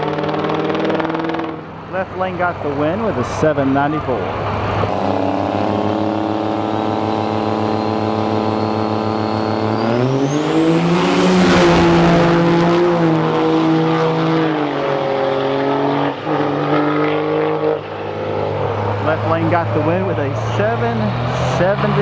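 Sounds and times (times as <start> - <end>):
diesel truck engine revving: 0.0 - 22.0
turbo whine: 1.6 - 14.3, 18.6 - 22.0.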